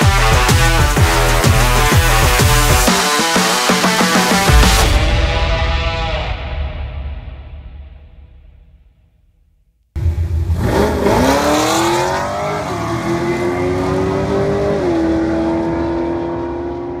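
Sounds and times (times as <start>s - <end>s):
car engine starting and revving: 10.0s - 17.0s.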